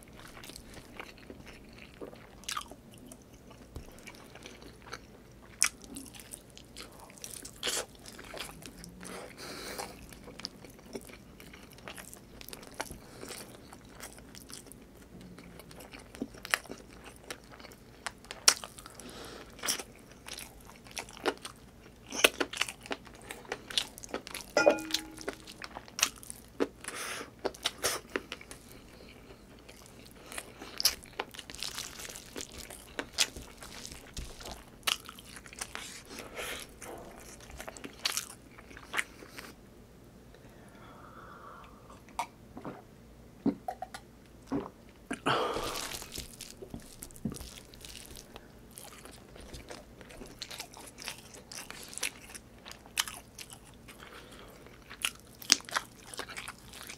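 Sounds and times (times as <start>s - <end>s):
person chewing with mouth clicks: 0.1s - 39.6s, 43.5s - 56.9s.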